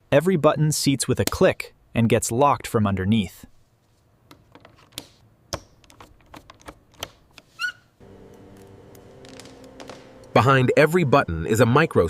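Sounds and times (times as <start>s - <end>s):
low steady hum: 8.0s - 12.0s.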